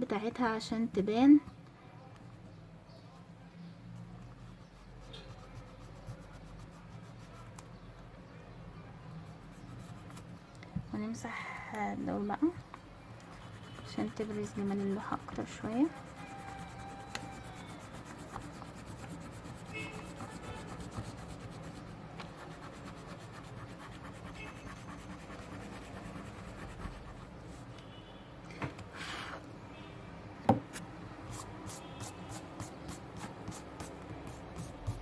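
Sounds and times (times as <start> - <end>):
eraser rubbing on paper: 4.3 - 7.5, 13.2 - 27.6, 31.3 - 35.0.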